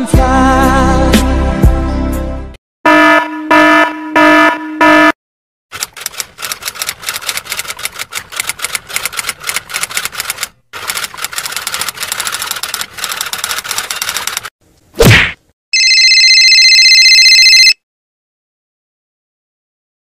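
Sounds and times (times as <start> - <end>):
typewriter keystrokes: 5.7 - 14.5
loud punch sound effect: 15.0 - 15.4.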